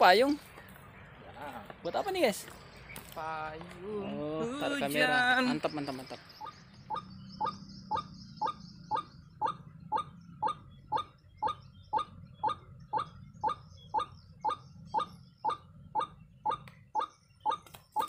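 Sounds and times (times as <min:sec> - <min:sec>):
waterhen calling: 0:03.9 - 0:18.0.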